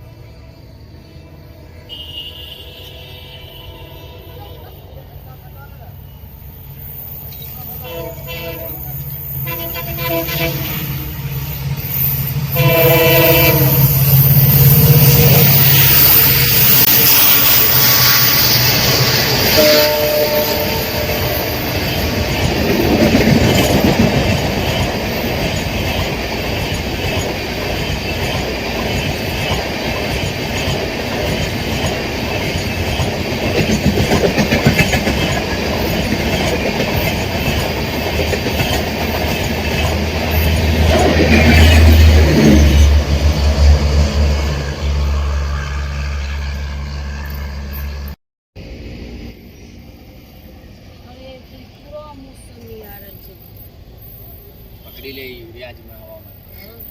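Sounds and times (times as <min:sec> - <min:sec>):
train rushing past: 0:00.0 - 0:56.9
wheels clattering over rail joints: 0:21.7 - 0:43.2.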